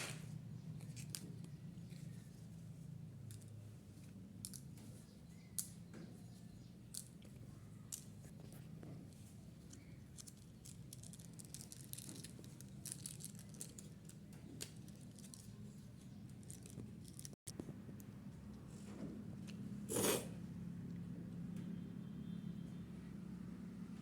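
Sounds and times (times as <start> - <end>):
plastic packaging handled: 10.1 - 17.4
candy wrapper crinkling: 10.2 - 17.4.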